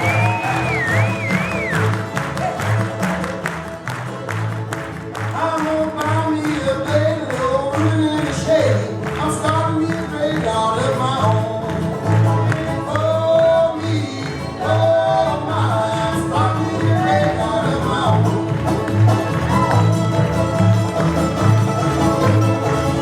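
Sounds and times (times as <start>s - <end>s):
string band playing: 0.0s - 23.0s
person singing: 5.3s - 18.5s.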